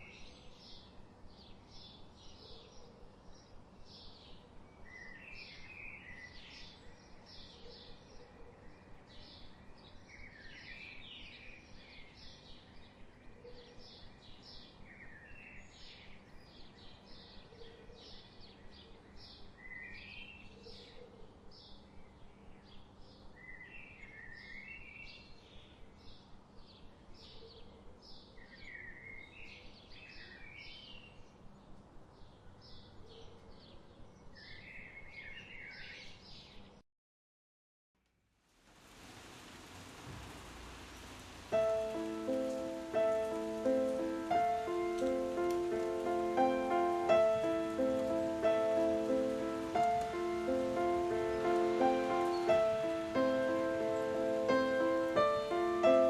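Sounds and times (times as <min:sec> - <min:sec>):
background hiss: 0:38.2 - 0:56.0.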